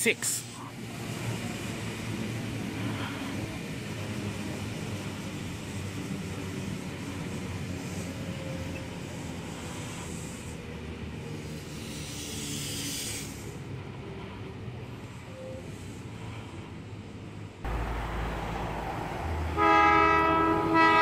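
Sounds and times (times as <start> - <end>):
electric train rumble: 0.0 - 21.0.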